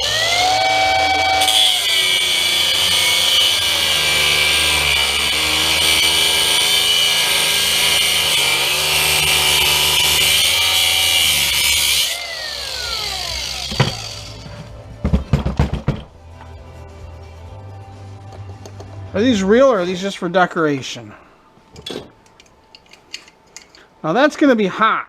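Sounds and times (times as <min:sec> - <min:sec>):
electric power tool cutting: 0:00.0 - 0:14.5.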